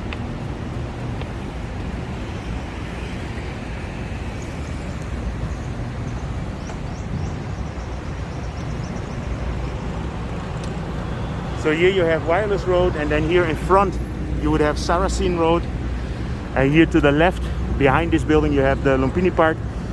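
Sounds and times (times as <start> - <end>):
road traffic rumble: 0.0 - 19.9.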